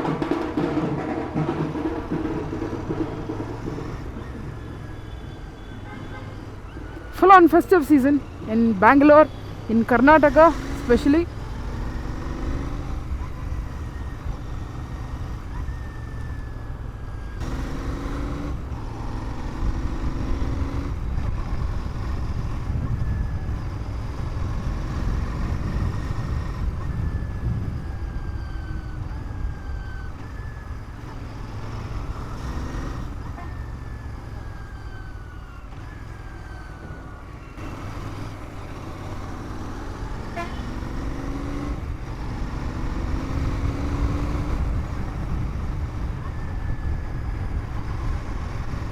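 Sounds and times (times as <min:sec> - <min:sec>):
motorcycle engine rumble: 0:00.0 - 0:48.9
pitched sounds: 0:07.2 - 0:11.3
wind on microphone: 0:20.7 - 0:32.3, 0:41.6 - 0:48.9.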